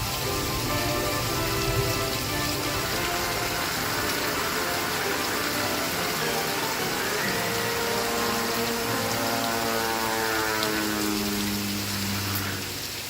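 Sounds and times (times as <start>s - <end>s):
television music with held notes: 0.0s - 10.0s
rain hiss: 0.0s - 13.0s.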